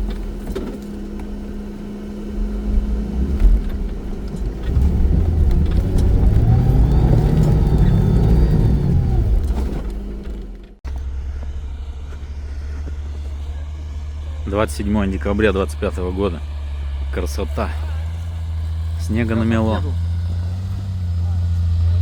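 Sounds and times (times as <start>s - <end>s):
car engine revving hard: 0.0s - 10.3s, 11.6s - 22.0s.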